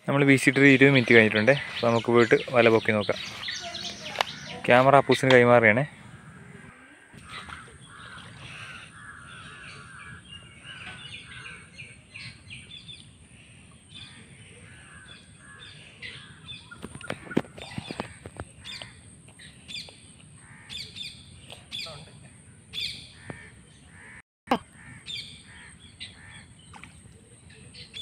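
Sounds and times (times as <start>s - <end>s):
birds chirping: 0.0s - 28.0s
crows cawing: 1.0s - 11.8s, 14.0s - 19.0s, 20.4s - 20.9s, 22.5s - 26.5s.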